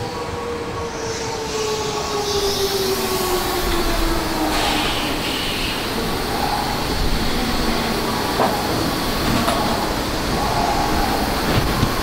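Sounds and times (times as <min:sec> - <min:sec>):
train wheel and rail noise: 0:00.0 - 0:12.0.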